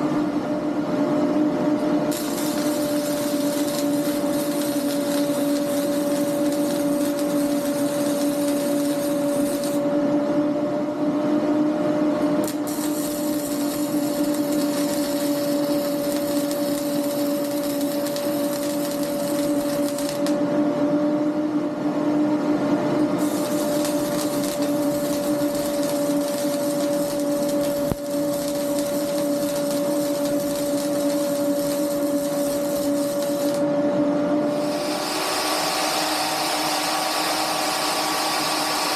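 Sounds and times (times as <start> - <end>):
steady machine hum: 0.0 - 38.9
hiss: 2.1 - 9.8, 12.5 - 20.3, 23.2 - 33.6, 34.6 - 38.9.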